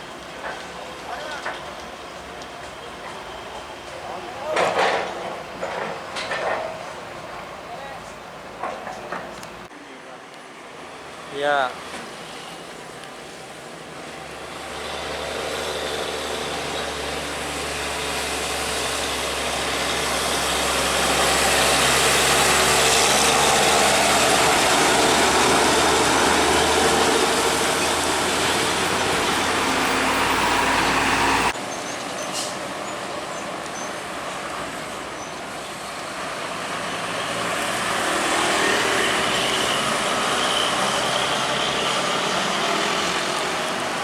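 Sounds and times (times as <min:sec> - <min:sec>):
heavy truck passing: 0:10.6 - 0:44.0.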